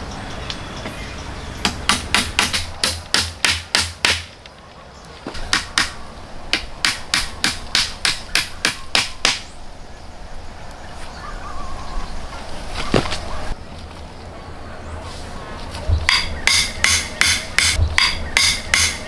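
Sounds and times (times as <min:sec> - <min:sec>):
hand tool striking wood: 0:01.6 - 0:04.4, 0:05.3 - 0:09.5, 0:15.9 - 0:19.0.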